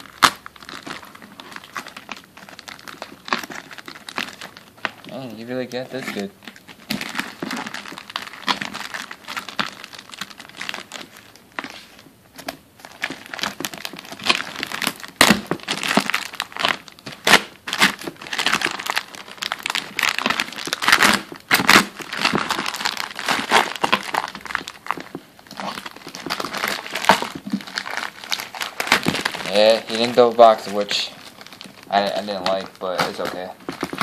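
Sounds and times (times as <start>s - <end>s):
plastic bag tearing and crinkling: 0.0s - 34.0s.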